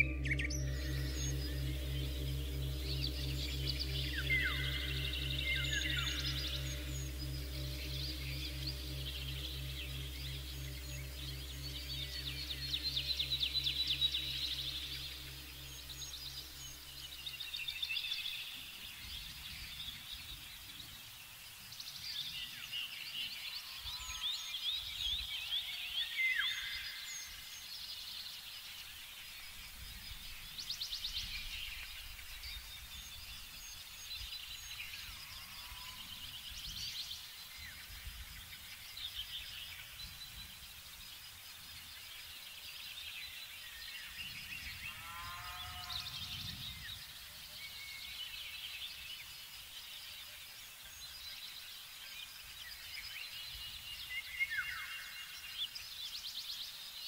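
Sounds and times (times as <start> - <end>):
faint low rumble: 0.0 - 20.6
songbirds singing: 0.0 - 57.0.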